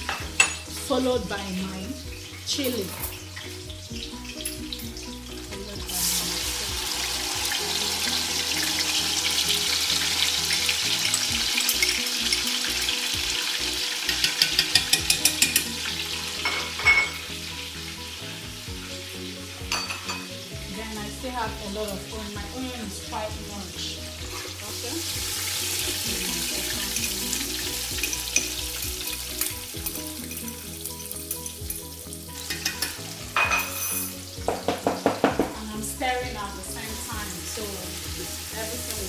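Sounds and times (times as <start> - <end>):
vegetables sizzling in hot oil: 0.0 - 39.0
metal spoon scraping pot: 14.0 - 17.2, 32.4 - 34.2.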